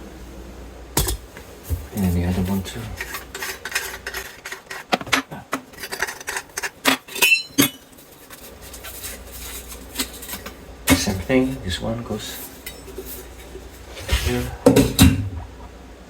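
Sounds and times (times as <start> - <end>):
metal parts clinking in a sink: 2.0 - 4.8, 5.7 - 15.2
metallic ring: 7.1 - 7.8.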